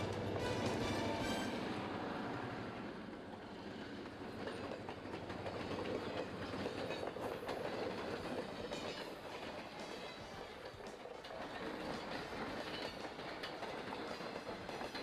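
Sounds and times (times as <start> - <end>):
wheels clicking over rail joints: 0.0 - 1.1, 3.4 - 15.0
train rumbling on track: 0.0 - 15.0.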